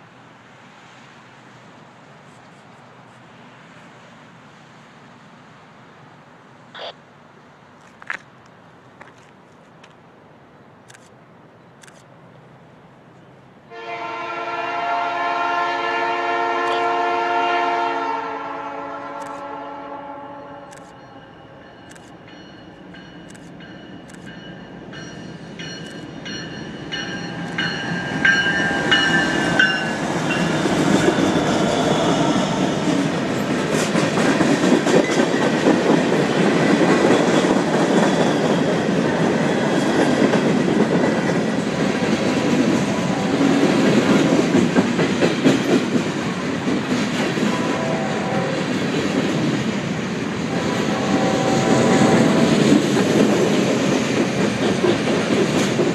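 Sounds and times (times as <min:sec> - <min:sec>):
train horn: 0:13.7 - 0:21.4, 0:42.3 - 0:43.8, 0:47.4 - 0:48.8, 0:50.4 - 0:52.8
train wheels clacking on rails: 0:20.8 - 0:55.9.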